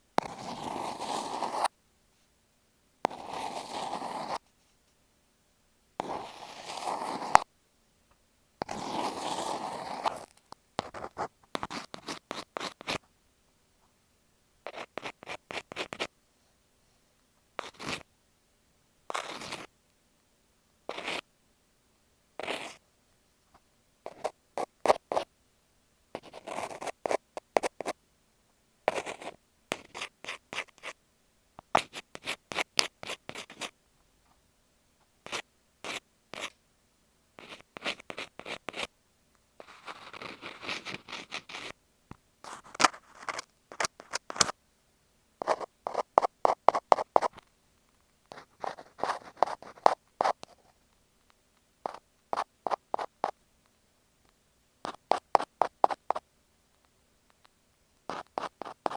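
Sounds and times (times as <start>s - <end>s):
ear pick scratching microphone: 3.1s - 4.4s.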